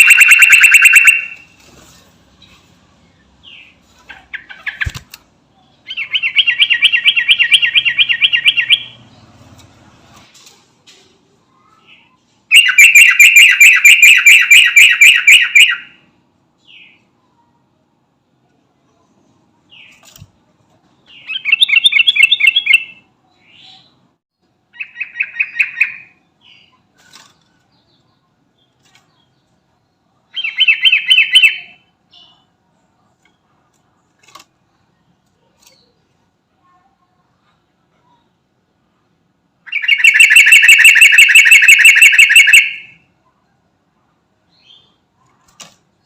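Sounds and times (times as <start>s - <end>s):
bulbul singing rapid notes: 0.0s - 1.4s, 39.7s - 42.9s.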